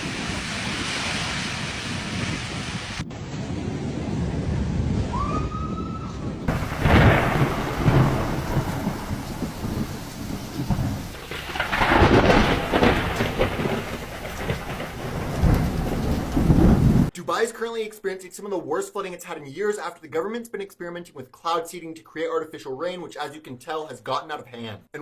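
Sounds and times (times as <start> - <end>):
steady rain: 0.0 - 5.1, 6.5 - 17.1
thunder rumbling: 0.0 - 17.1
wind: 0.0 - 17.4.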